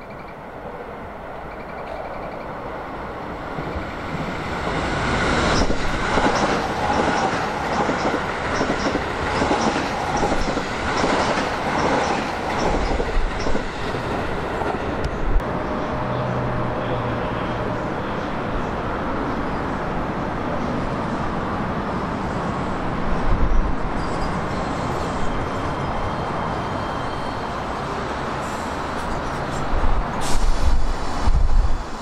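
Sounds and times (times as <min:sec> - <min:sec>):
electric train passing: 0:00.0 - 0:32.0
wheels clacking over rail joints: 0:05.5 - 0:15.1.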